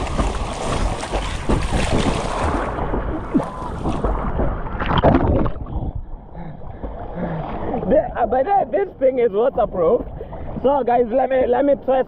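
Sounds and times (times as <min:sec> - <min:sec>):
wind on microphone: 0:00.0 - 0:06.2
seawater splashing: 0:00.0 - 0:08.5.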